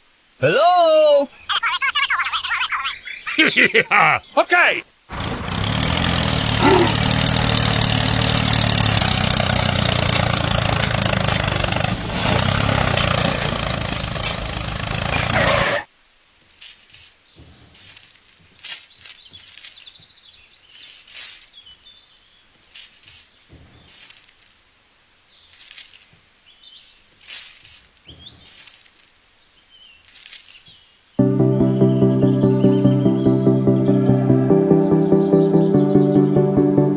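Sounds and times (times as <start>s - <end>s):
bird chirps: 0.4s - 5.1s, 18.8s - 22.7s, 29.5s - 36.9s.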